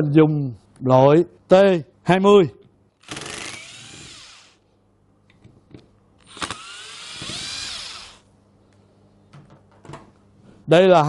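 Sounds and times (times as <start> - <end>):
power screwdriver whirring: 3.0 - 4.6, 6.2 - 8.2.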